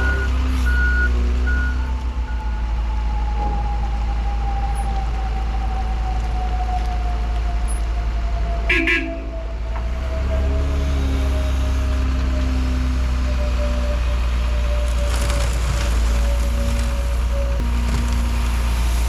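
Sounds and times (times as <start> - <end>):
truck diesel engine running: 0.0 - 19.0
short horn toot: 8.7 - 9.3.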